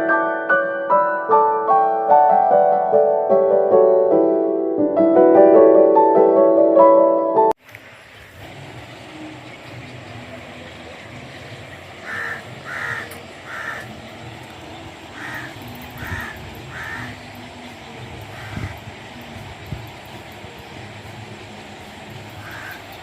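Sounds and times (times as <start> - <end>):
outdoor background noise: 7.6 - 23.0
bird calling: 8.9 - 19.4, 20.0 - 23.0.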